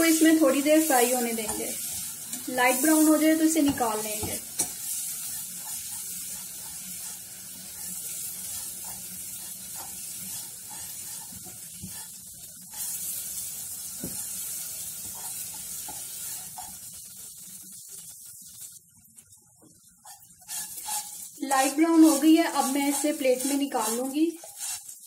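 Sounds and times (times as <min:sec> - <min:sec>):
noodles sizzling in butter: 0:00.0 - 0:25.0
spatula stirring in saucepan: 0:00.0 - 0:25.0.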